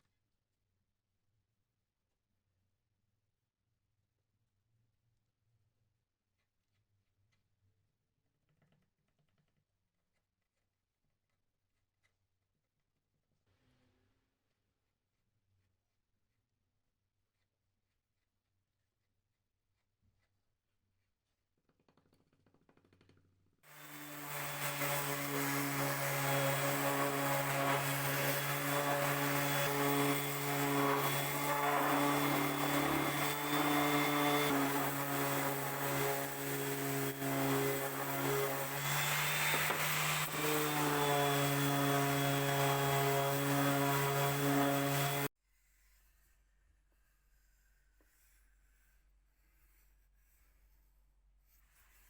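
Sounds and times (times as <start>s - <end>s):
electric power tool on wood: 23.7s - 45.3s.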